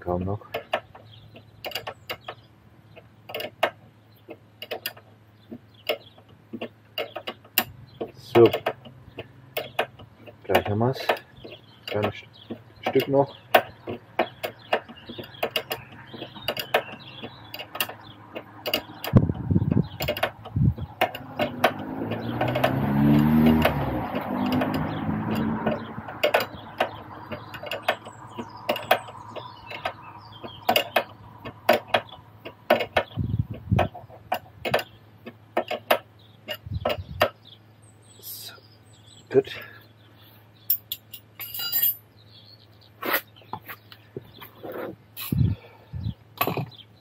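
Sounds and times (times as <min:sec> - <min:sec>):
rubbing grinding noise: 0:00.0 - 0:37.5, 0:42.8 - 0:47.0
ratchet wrench clicking: 0:14.3 - 0:28.1.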